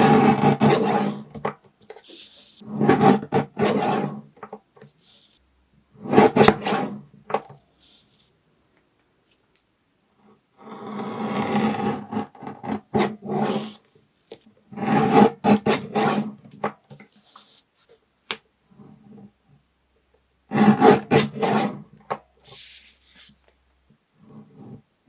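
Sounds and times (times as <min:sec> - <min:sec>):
paper cutter slicing: 0:06.0 - 0:07.0, 0:20.5 - 0:21.7.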